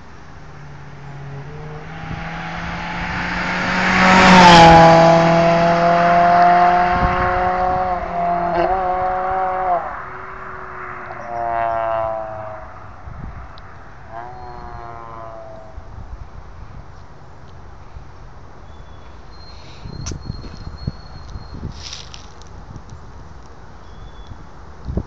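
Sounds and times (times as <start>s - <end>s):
car accelerating past: 0.5s - 15.8s.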